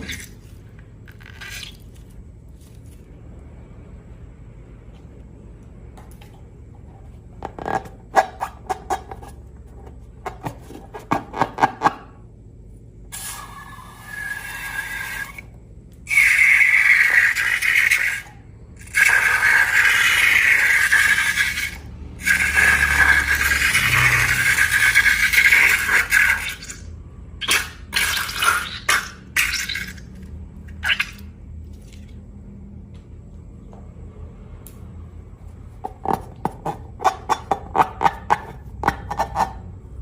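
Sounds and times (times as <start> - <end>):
liquid pouring into container: 16.1 - 30.2.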